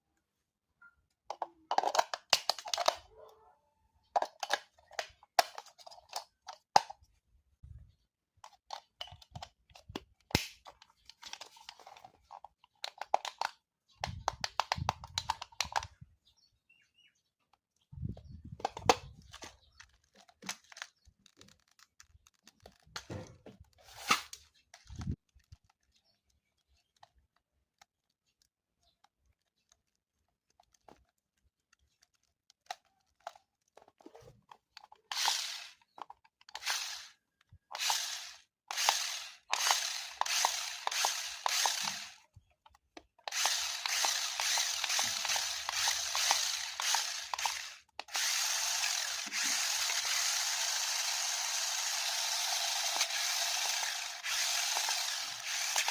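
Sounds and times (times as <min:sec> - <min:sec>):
handling clicks and crinkles: 0:01.1 - 0:03.4, 0:04.0 - 0:07.4, 0:08.2 - 0:16.1, 0:17.4 - 0:55.9
toy electric motor buzzing: 0:34.8 - 0:42.2, 0:43.2 - 0:55.9.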